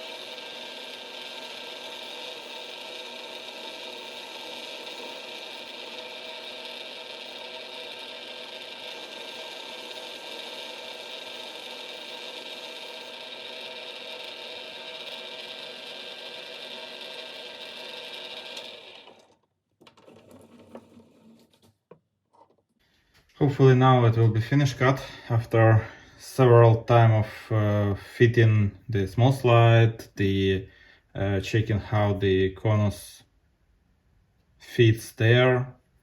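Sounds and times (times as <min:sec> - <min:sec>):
lathe motor whine: 0:00.0 - 0:21.5.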